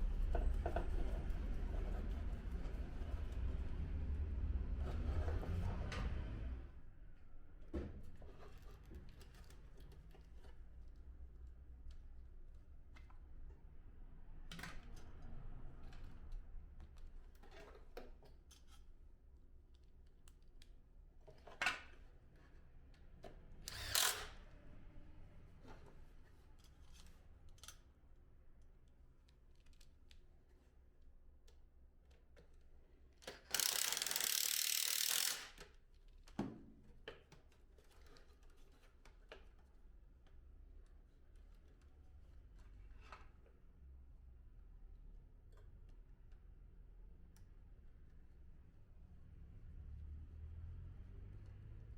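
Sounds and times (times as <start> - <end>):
plastic parts clicking: 33.2 - 35.7.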